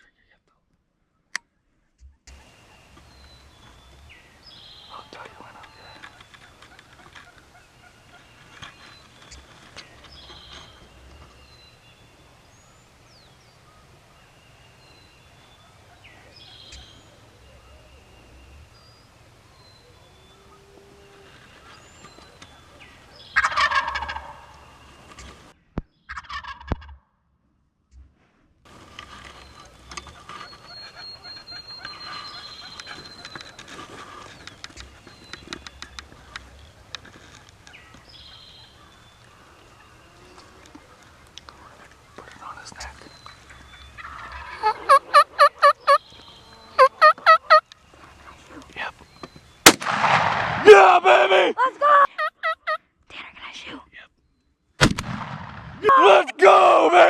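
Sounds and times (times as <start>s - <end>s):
songbirds chirping: 0.0s - 26.6s, 28.7s - 54.8s, 55.5s - 57.0s
turkey gobbling: 5.0s - 9.6s, 22.2s - 25.3s, 26.1s - 27.0s, 29.6s - 35.0s, 43.4s - 48.6s, 51.6s - 52.8s.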